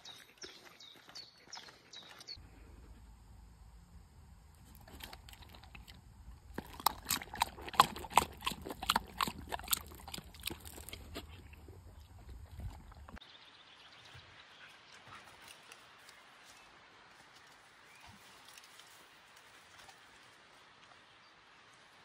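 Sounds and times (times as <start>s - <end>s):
dog lapping water: 4.7s - 13.2s.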